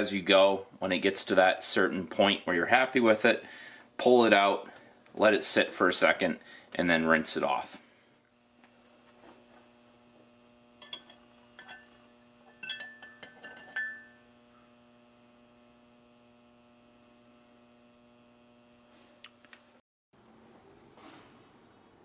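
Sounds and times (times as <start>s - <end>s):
faint electrical hum: 0.0s - 22.0s
light ringing clinks: 10.8s - 14.3s.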